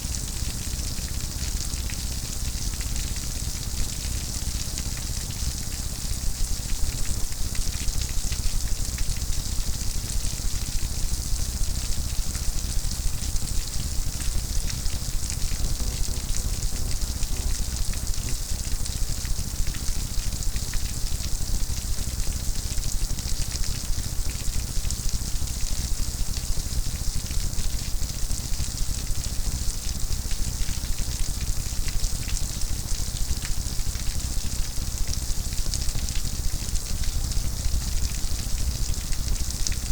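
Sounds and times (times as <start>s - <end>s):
rain patter: 0.0s - 39.9s
low steady rumble: 14.8s - 18.2s.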